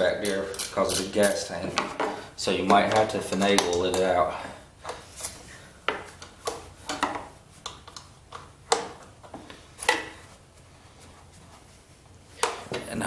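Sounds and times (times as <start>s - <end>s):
socket ratchet clicking: 0.2s - 1.4s.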